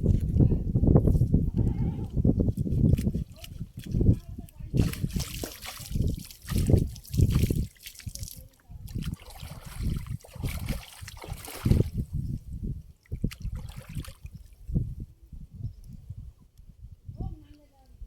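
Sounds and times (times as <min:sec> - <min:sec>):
water splashing and trickling: 0:02.0 - 0:14.8.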